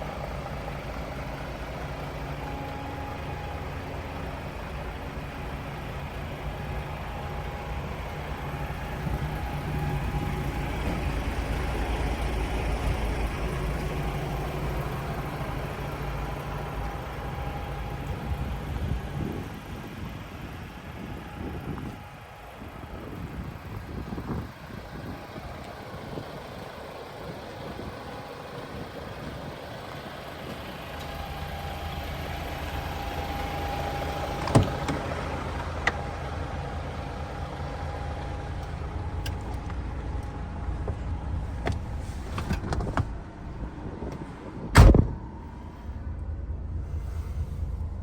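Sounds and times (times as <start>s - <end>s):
diesel truck engine running: 0.0s - 48.0s
heavy thump: 44.1s - 45.3s.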